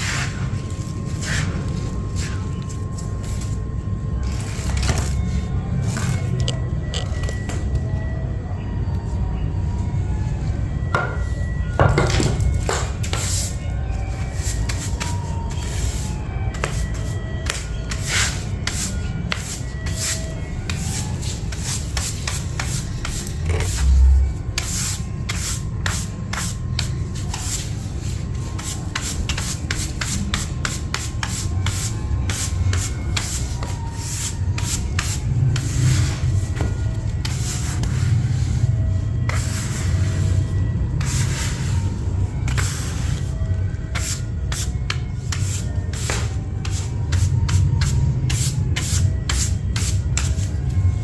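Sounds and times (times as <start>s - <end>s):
scrubbing strokes: 24.6s - 50.5s.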